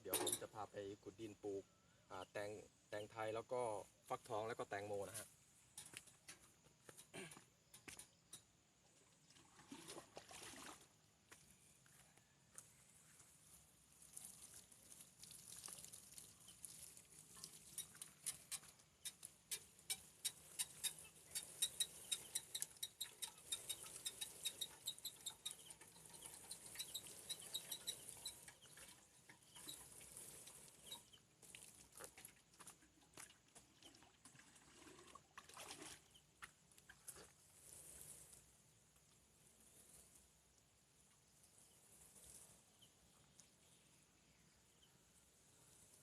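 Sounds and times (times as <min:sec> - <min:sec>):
water splashing onto plants: 0:09.5 - 0:10.9, 0:13.9 - 0:19.8
rapid short high chirps: 0:19.9 - 0:25.6.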